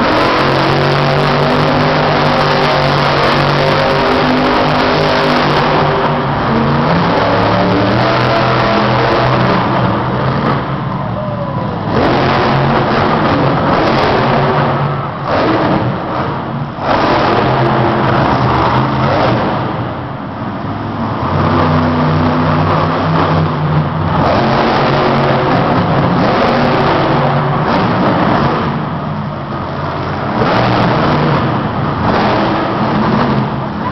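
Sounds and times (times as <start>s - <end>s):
truck engine revving hard: 0.0s - 33.9s.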